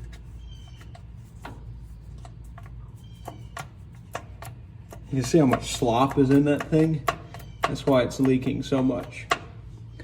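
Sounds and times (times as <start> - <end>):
metal knocking on metal: 2.5 - 9.7.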